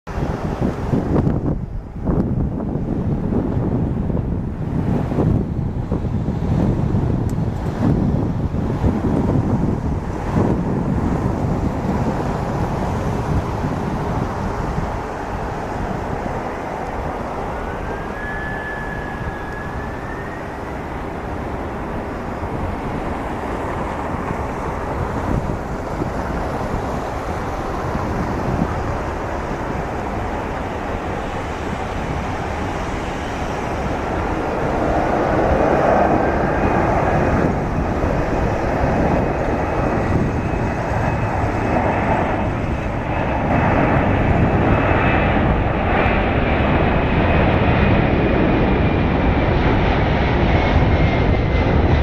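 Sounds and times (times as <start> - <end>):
jet engines roaring: 0.1 - 52.0
wind noise on microphone: 0.1 - 52.0
faint rising whine: 13.5 - 44.1.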